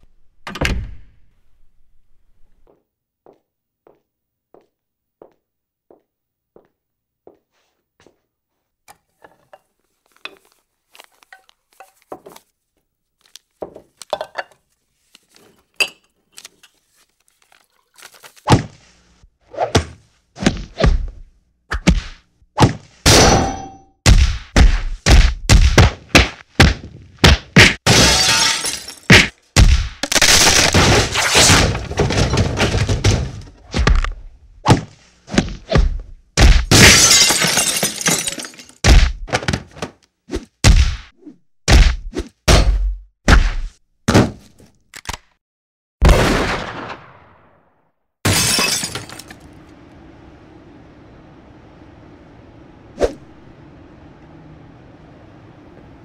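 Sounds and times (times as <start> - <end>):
glass shattering: 27.9 - 29.2, 36.7 - 38.8, 48.3 - 49.5.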